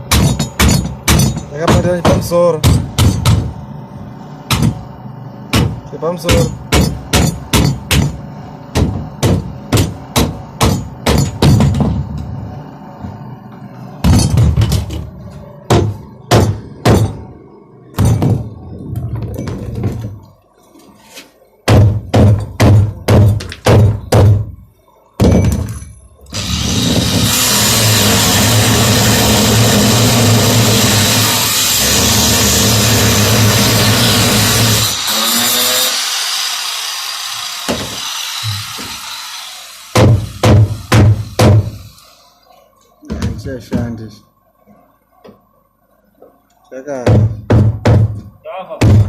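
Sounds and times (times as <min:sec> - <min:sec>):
hammer blows: 0:05.5 - 0:20.2
motor running loudly: 0:26.3 - 0:42.3.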